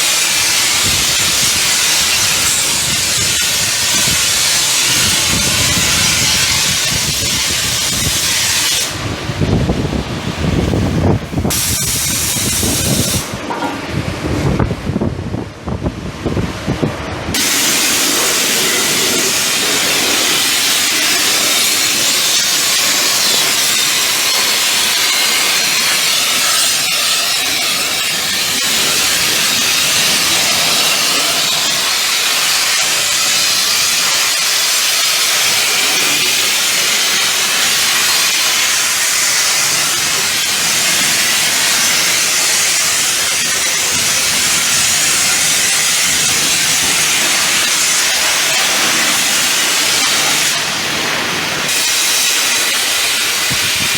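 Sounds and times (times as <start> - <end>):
pressure washer spraying: 0.0 - 9.1, 11.4 - 13.4, 17.3 - 53.9.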